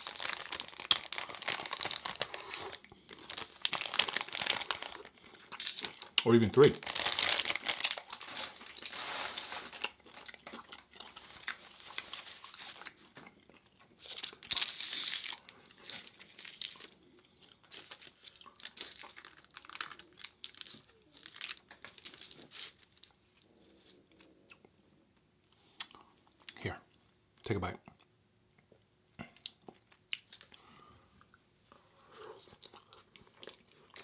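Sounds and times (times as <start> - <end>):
crinkling packaging: 0.0 - 13.3, 13.9 - 23.5
chewing crunchy food: 0.0 - 23.5, 32.2 - 34.0.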